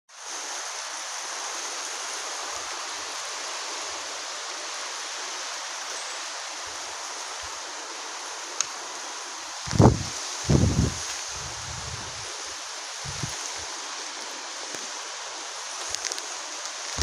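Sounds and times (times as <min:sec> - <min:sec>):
rain falling: 0:00.1 - 0:17.0
wind buffeting microphone: 0:09.6 - 0:12.3, 0:13.0 - 0:13.4.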